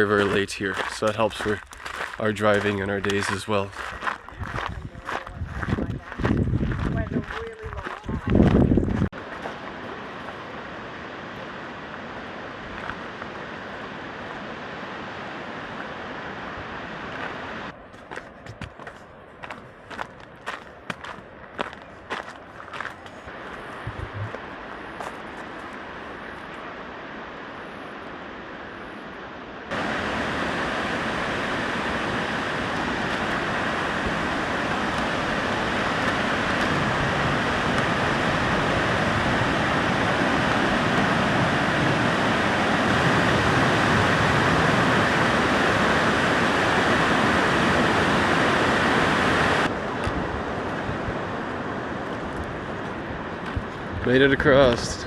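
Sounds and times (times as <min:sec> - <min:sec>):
fast river rushing: 0:09.2 - 0:17.7, 0:23.3 - 0:54.9.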